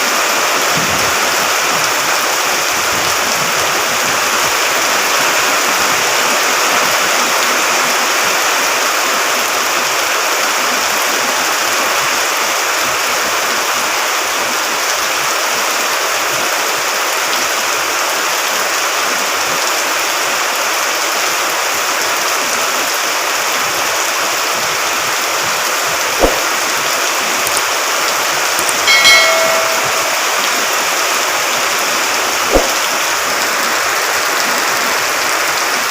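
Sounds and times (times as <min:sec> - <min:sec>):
flowing water rushing: 0:00.0 - 0:35.9
sharp knocks: 0:26.2 - 0:26.7, 0:28.9 - 0:30.7, 0:32.5 - 0:32.8.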